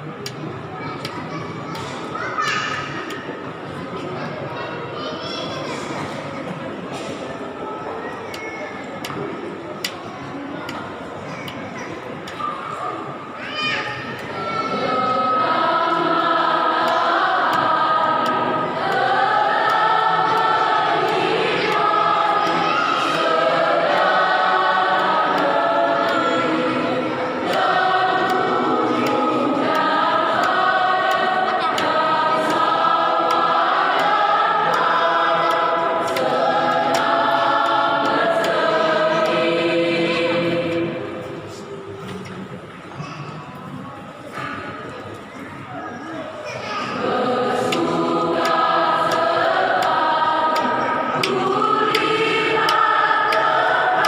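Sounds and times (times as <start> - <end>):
choir singing a hymn: 14.2 - 43.0, 46.8 - 54.0.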